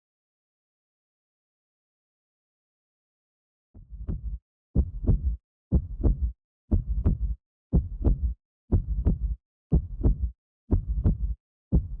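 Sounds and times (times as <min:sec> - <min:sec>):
heartbeat-like double thump: 0:03.8 - 0:12.0.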